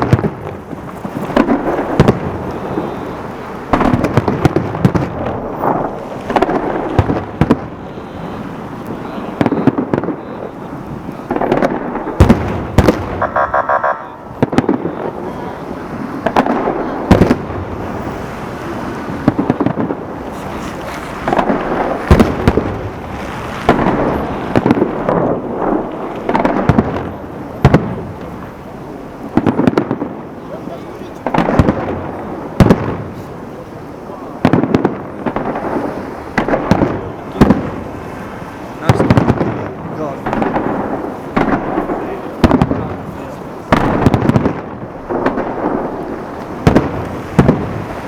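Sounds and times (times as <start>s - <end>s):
firework bangs: 0.0s - 48.0s
firework crackling bursts: 0.0s - 48.0s
pulsing tone: 13.2s - 14.3s.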